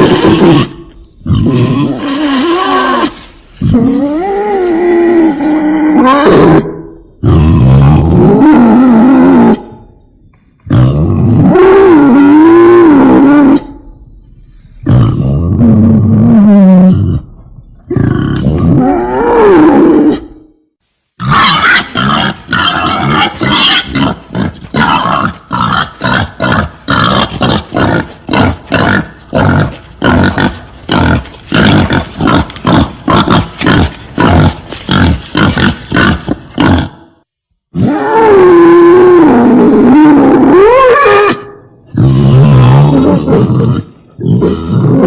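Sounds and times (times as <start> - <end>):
wild boar wavering squeal: 21.2 - 24.1.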